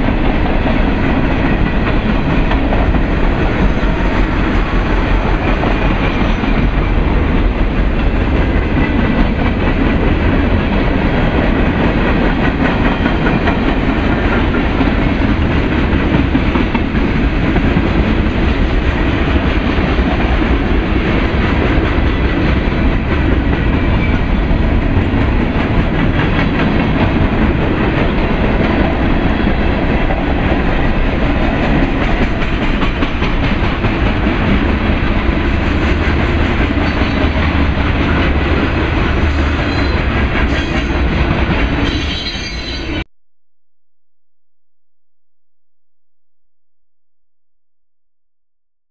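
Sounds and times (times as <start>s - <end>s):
freight train rumbling past: 0.0s - 43.0s
wheel squeal: 41.9s - 43.0s.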